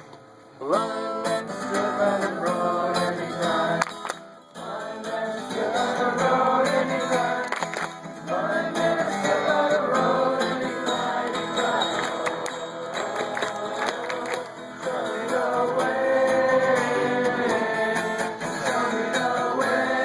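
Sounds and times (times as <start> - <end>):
strummed acoustic guitar: 0.0 - 20.0
group singing: 1.4 - 20.0.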